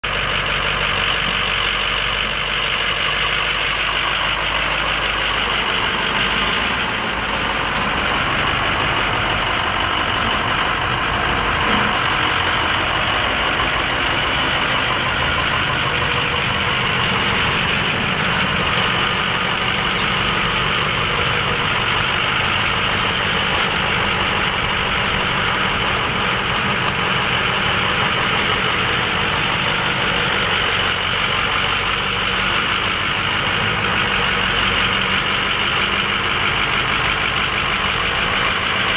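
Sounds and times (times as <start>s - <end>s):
pickup truck engine idling: 0.0s - 38.9s.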